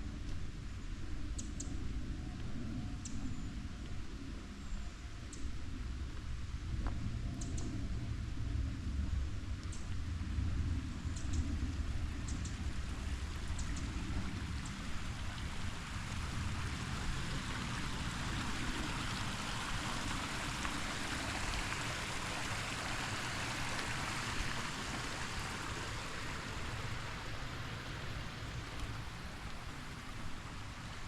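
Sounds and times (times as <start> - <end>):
creek water rushing: 8.3 - 31.0.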